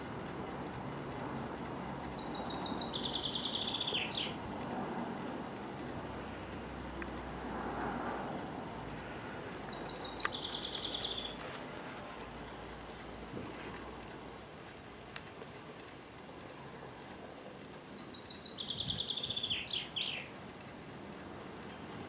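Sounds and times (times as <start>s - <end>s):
outdoor background hiss: 0.0s - 22.0s
songbird trilling: 2.2s - 4.4s, 9.6s - 11.4s, 18.0s - 20.3s.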